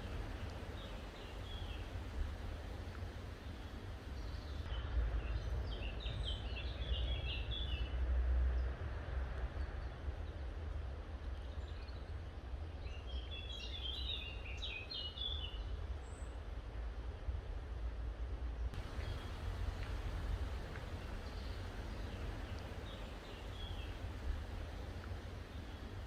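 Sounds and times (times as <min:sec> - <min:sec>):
songbird singing: 0:00.0 - 0:08.0, 0:12.8 - 0:16.3, 0:18.8 - 0:26.0
low rumble: 0:18.8 - 0:26.0.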